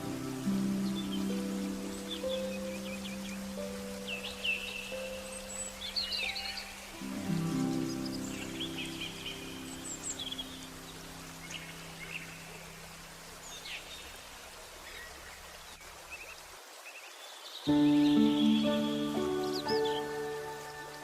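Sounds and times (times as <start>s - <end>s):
soft held music notes: 0.0s - 15.6s
flowing water: 0.0s - 21.0s
small birds chirping: 0.0s - 21.0s.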